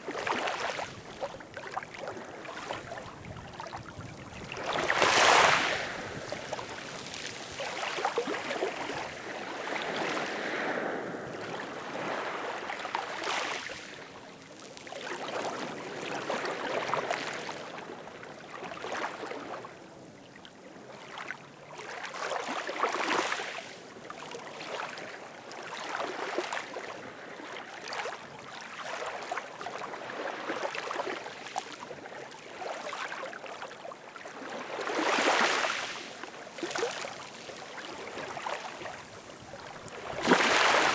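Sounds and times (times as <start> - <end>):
ocean waves washing in: 4.4 - 13.8, 37.7 - 40.9.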